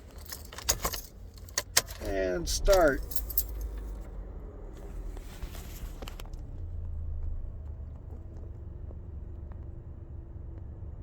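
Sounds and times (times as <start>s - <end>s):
car engine idling: 0.0s - 10.3s.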